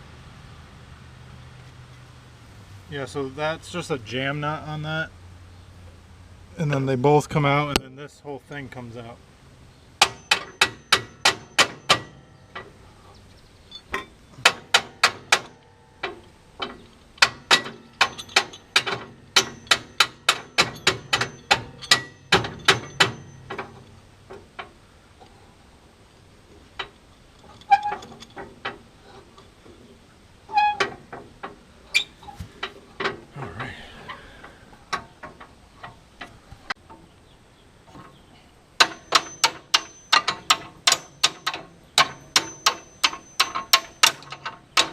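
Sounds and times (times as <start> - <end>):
hammer striking steel: 10.0 - 12.3.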